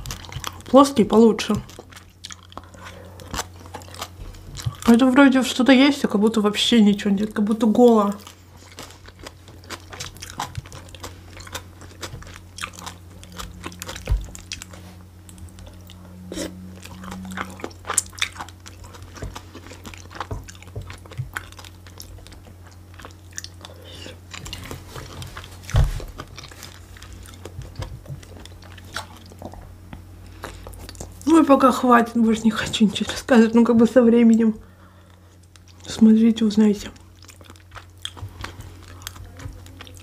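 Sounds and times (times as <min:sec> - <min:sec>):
person chewing food: 0:00.0 - 0:05.2, 0:07.8 - 0:31.3, 0:32.6 - 0:36.0, 0:36.8 - 0:40.0.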